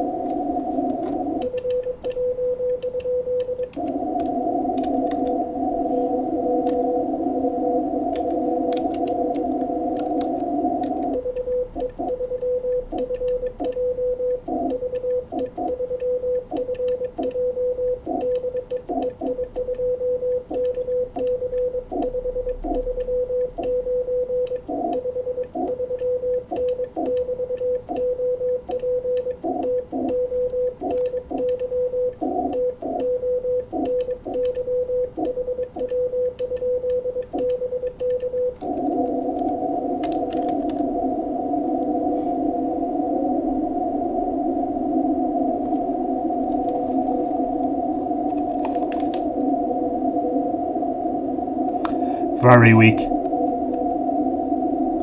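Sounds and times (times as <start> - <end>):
radio band hiss: 51.9 - 53.2.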